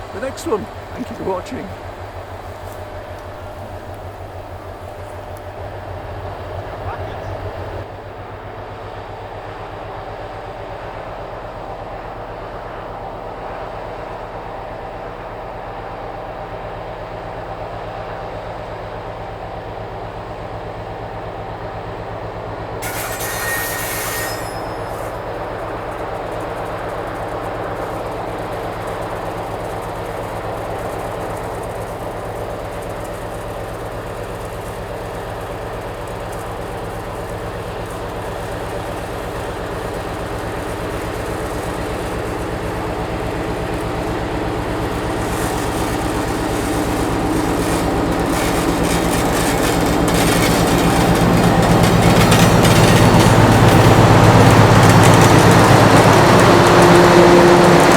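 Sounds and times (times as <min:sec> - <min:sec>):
diesel locomotive engine drone: 0:00.0 - 0:57.9
brief high hiss: 0:22.8 - 0:29.1.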